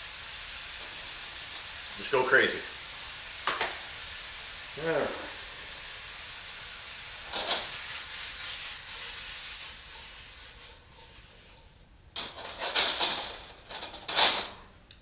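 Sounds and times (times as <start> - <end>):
food sizzling in a pan: 0.0 - 11.8
stirring scrape in pan: 5.6 - 12.4.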